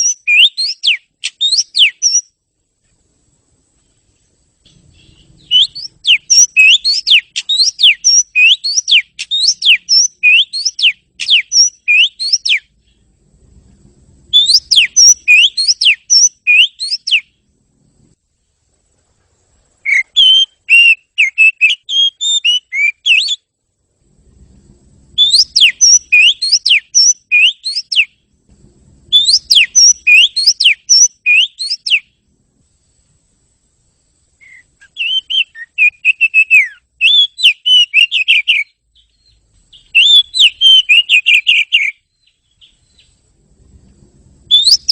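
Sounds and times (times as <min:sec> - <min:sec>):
bird singing whistled notes: 0:00.0 - 0:02.4, 0:04.7 - 0:13.1, 0:14.3 - 0:17.4, 0:19.8 - 0:23.5, 0:25.1 - 0:28.3, 0:29.1 - 0:32.2, 0:34.4 - 0:43.2, 0:44.5 - 0:44.9.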